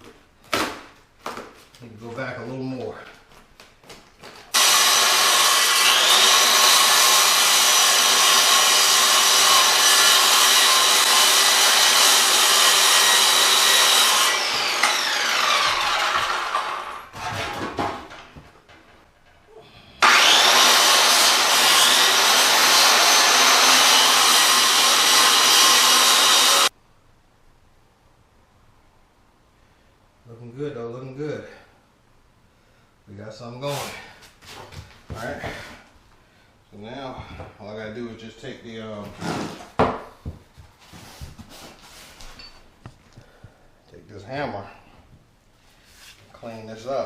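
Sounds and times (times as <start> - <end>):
electric saw cutting wood: 4.5 - 17.6, 20.0 - 26.7.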